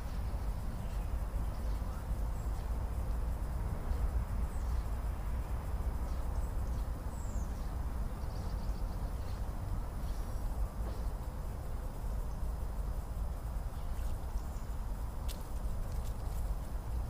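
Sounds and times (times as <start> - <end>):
faint bird chirps: 0.0 - 2.9, 6.0 - 11.2
steady low rumble: 0.0 - 17.0.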